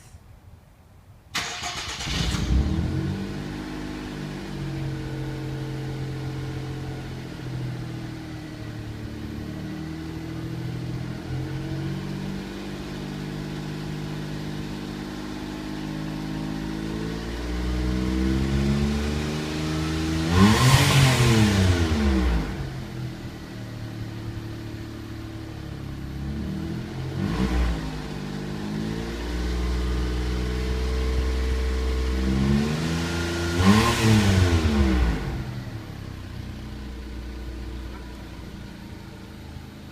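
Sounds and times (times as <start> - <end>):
car engine starting and revving: 1.3 - 39.8.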